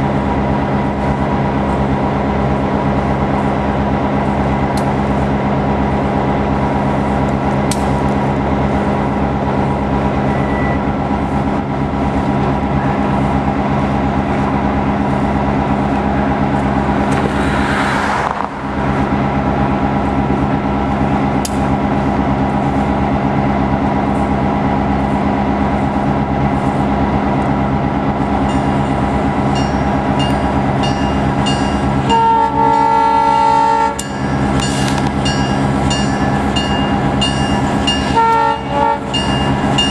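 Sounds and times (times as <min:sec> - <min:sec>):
diesel locomotive engine running: 0:00.0 - 0:39.9
multi-note train air horn: 0:32.1 - 0:34.0, 0:38.1 - 0:39.2.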